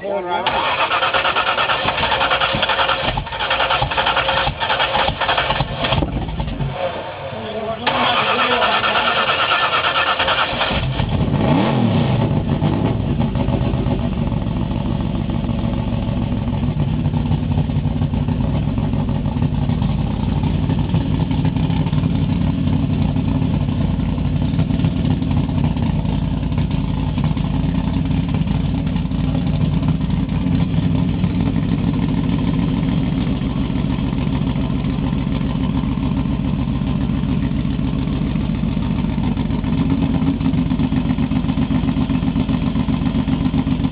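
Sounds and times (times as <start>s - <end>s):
car engine cranking and idling: 0.0s - 43.9s
engine revving: 0.4s - 14.1s.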